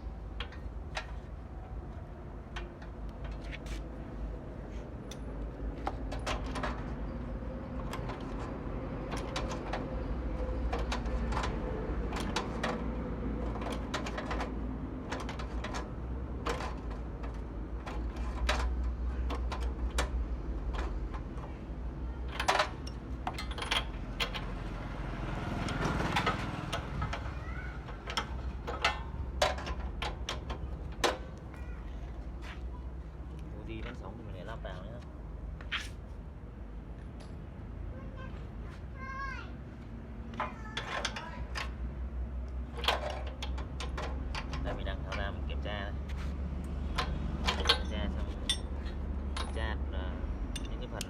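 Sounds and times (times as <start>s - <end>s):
clicks and light metal knocks: 0.3s - 3.9s, 4.7s - 7.0s, 10.6s - 21.6s, 25.6s - 32.7s, 40.3s - 49.7s, 50.5s - 51.0s.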